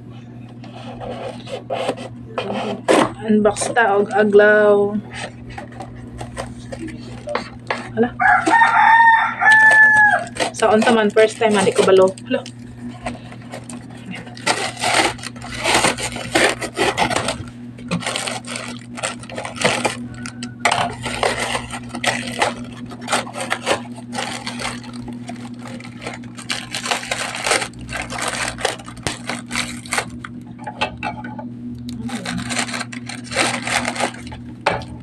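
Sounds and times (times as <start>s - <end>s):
packaging crinkling and scraping: 0.6s - 30.7s, 31.8s - 35.0s.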